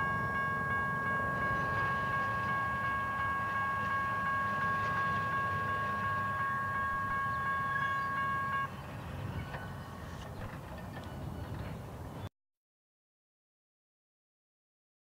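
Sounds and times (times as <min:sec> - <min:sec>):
high-pitched ringing tone: 0:00.0 - 0:08.8
freight train cars rumbling: 0:00.0 - 0:12.2.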